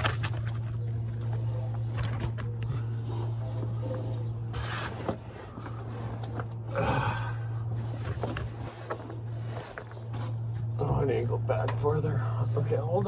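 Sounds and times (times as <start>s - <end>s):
scrapes and clicks of movement: 0.0s - 6.7s
steady low hum: 0.0s - 13.0s
man breathing out heavily: 6.7s - 7.6s.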